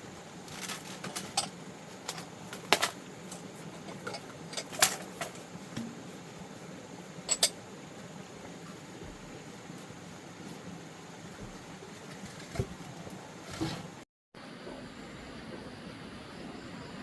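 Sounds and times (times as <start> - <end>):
bowls clinking: 7.3 - 7.6.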